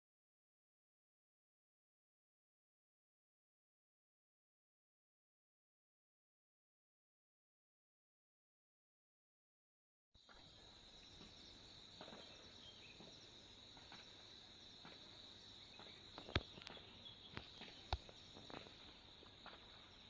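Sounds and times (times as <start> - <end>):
insects chirring: 10.2 - 20.0.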